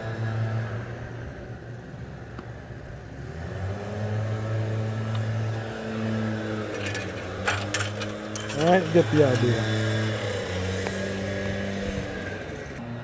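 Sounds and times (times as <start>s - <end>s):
engine running: 3.3s - 12.8s.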